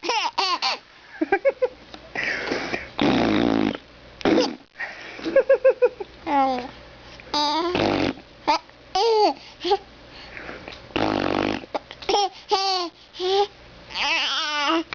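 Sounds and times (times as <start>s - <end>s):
baby babbling: 7.3s - 7.8s, 8.5s - 9.8s, 12.2s - 14.9s.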